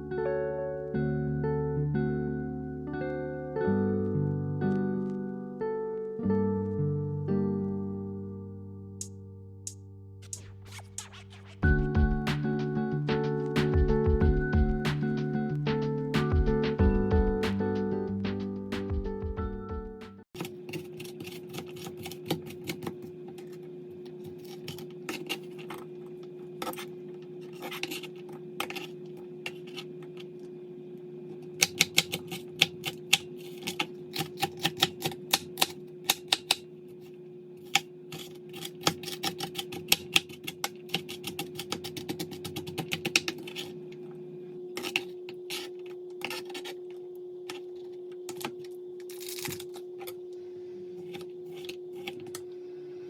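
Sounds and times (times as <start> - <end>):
low hum: 43.7 - 53.0.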